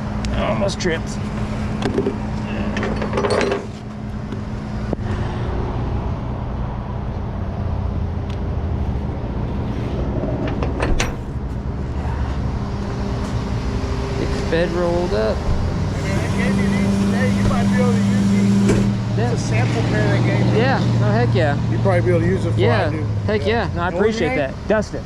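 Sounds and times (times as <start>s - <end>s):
steady hum: 0.0s - 25.0s
truck engine running: 0.0s - 25.0s
knocks and clanks: 1.8s - 5.6s, 10.2s - 11.6s, 15.2s - 16.0s, 18.6s - 19.0s.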